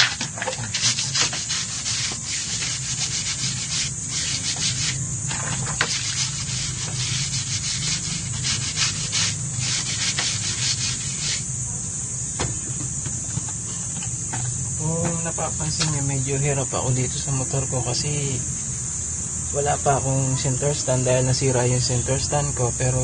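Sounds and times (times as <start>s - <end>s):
stiff brush scrubbing a tyre: 0.0s - 11.5s.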